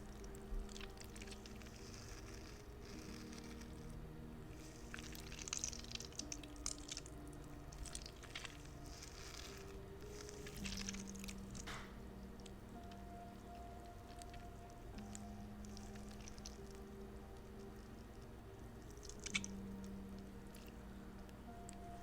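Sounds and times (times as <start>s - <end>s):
soft music tones: 0.0s - 22.0s
squishy toy squishing crackles: 0.1s - 4.0s, 4.6s - 16.9s, 18.8s - 19.9s.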